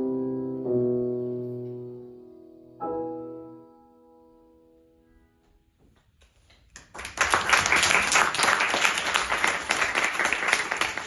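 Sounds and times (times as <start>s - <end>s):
piano note: 0.0s - 5.6s
audience applauding: 6.7s - 11.0s.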